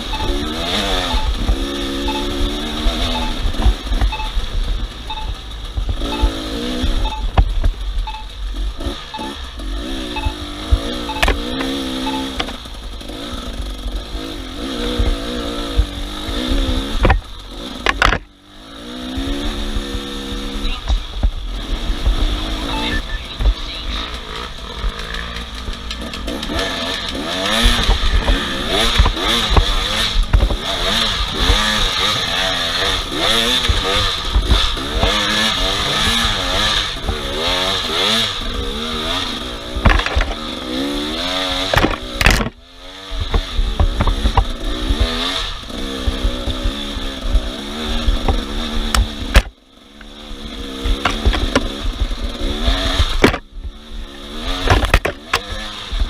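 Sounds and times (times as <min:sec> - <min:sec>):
off-road vehicle engine revving: 0:00.0 - 0:56.0.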